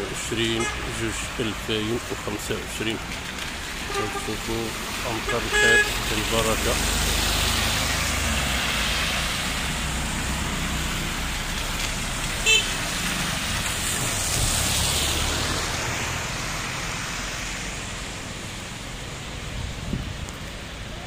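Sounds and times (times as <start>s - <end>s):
cars passing on wet road: 0.0s - 21.0s.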